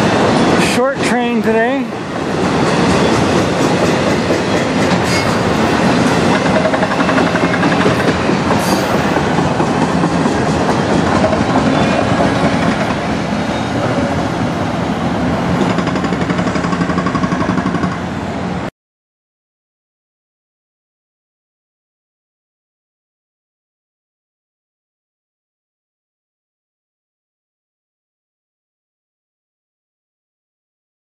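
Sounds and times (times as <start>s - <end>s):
train wheels rolling over rails: 0.0s - 18.6s.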